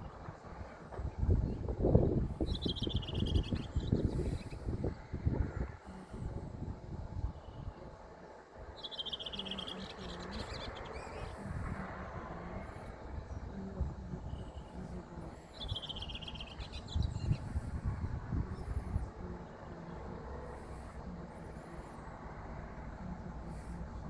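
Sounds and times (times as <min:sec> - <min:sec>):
small bird trilling: 0:02.4 - 0:04.5, 0:08.8 - 0:11.6, 0:15.5 - 0:17.6.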